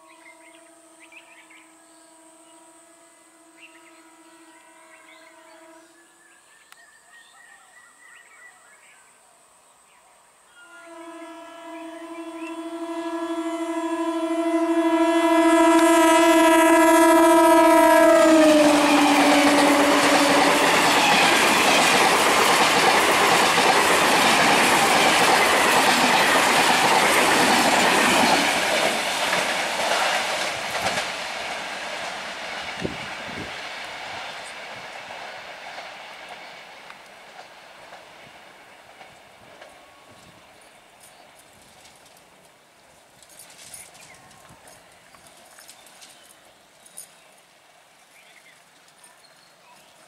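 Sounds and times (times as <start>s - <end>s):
train horn: 0.0s - 6.4s, 10.5s - 31.0s
train coaches running past: 10.7s - 49.0s.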